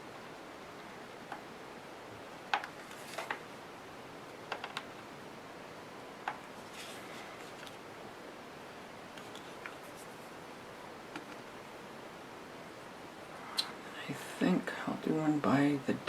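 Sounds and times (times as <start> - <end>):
faint steady hiss: 0.0 - 16.0
soft rustle: 2.8 - 3.5, 6.5 - 7.8, 9.1 - 10.4.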